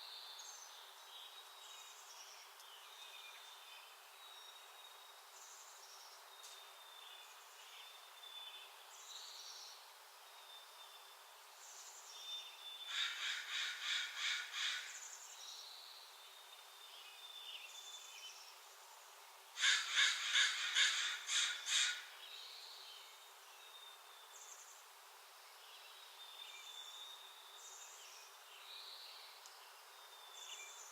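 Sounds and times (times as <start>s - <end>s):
harsh rapid bird calls: 12.9s - 15.1s, 19.6s - 22.2s.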